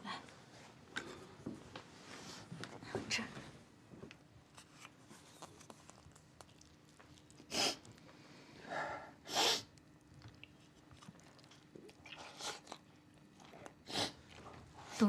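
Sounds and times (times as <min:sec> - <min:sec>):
person sniffing sharply: 0:07.5 - 0:07.8, 0:09.3 - 0:09.7.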